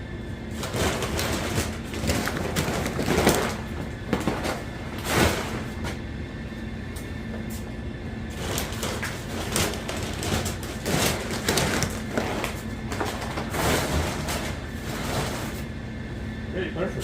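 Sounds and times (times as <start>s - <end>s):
objects scraping and knocking: 8.4s - 15.7s.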